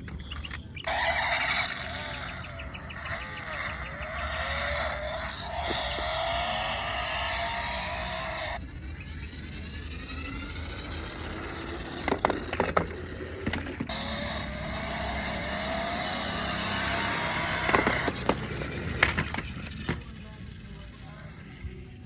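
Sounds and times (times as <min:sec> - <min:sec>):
toy car motor whining: 0:00.0 - 0:22.0
plastic clicks and knocks: 0:12.1 - 0:13.9.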